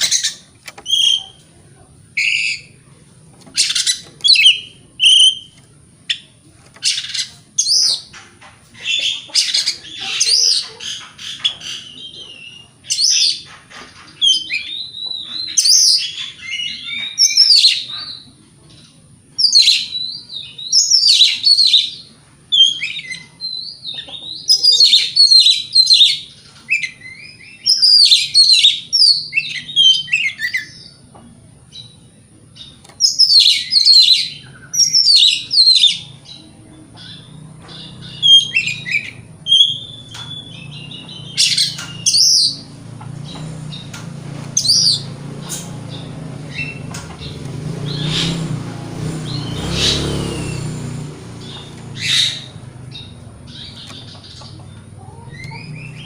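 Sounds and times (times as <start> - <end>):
bird singing whistled phrases: 0.8 - 1.4, 4.2 - 6.2, 24.5 - 30.8, 38.1 - 42.6.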